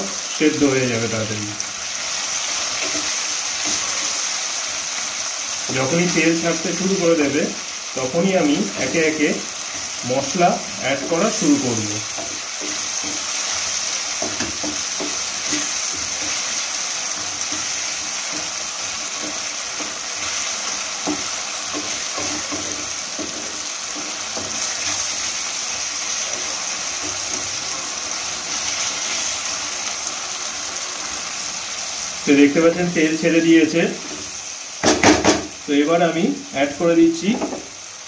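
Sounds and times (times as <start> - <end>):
onions sizzling in hot oil: 0.0 - 38.0
wooden spatula scraping pan: 11.0 - 25.4.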